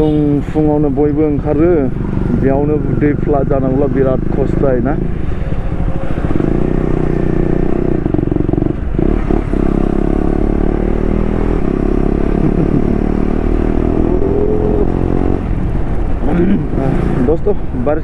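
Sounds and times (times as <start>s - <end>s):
motorcycle engine running: 0.0s - 17.3s.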